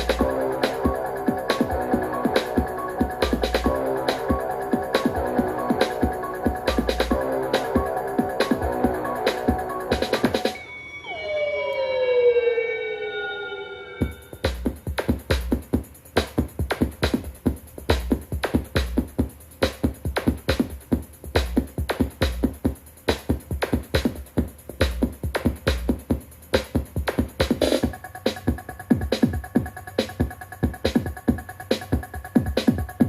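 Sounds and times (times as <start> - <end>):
drum machine beat with bass kicks: 0.0 - 10.6, 14.0 - 33.0
falling synth glides: 0.2 - 14.4.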